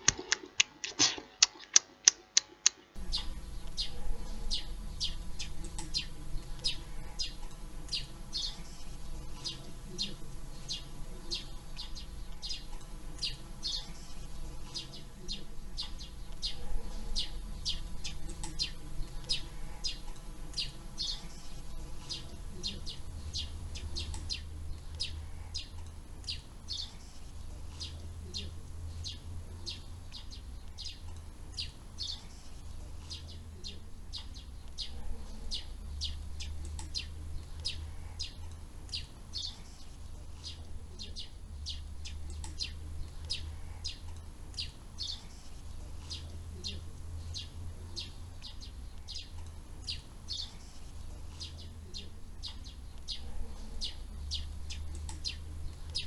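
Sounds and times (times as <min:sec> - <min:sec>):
birds chirping: 0:02.7 - 0:56.0
low steady rumble: 0:03.0 - 0:56.0.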